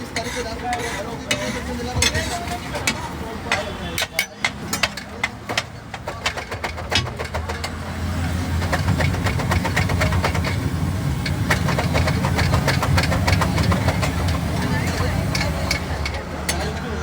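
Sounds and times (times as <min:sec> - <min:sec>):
engine rumbling: 0:00.0 - 0:17.0.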